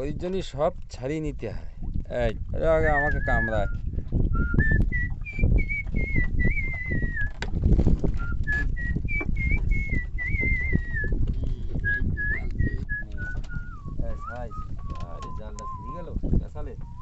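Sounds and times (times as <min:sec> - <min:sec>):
person whistling a tune: 0:02.8 - 0:03.8, 0:04.4 - 0:07.4, 0:08.2 - 0:11.2, 0:11.8 - 0:16.1, 0:16.8 - 0:17.0.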